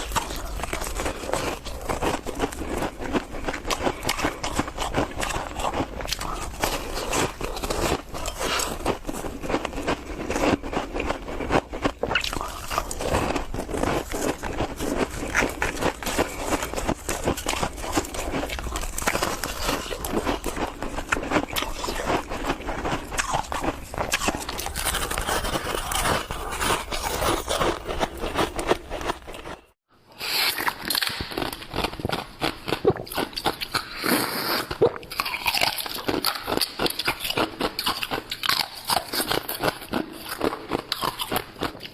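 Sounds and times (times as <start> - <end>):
ice crunching: 12.2 - 29.6.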